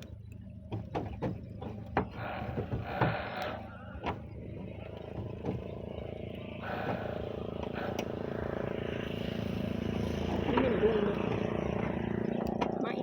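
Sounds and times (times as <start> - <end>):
engine running: 0.0 - 13.0
roof tile knocking: 0.7 - 3.4, 4.0 - 6.0.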